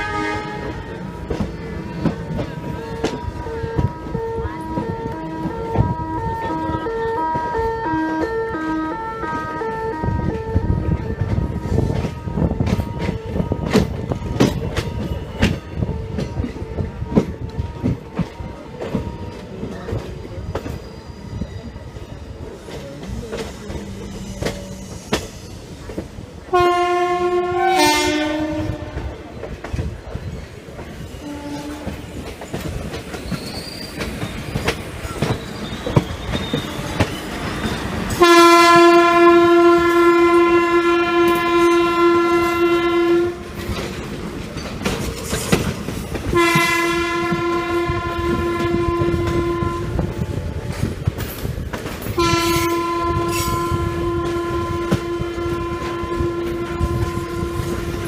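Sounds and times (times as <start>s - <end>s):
locomotive horn blasts: 0.0s - 1.0s, 2.6s - 17.3s, 26.5s - 29.3s, 31.2s - 32.1s, 38.1s - 43.6s, 46.3s - 50.4s, 52.2s - 58.0s
train wheels clattering over rails: 0.1s - 58.0s.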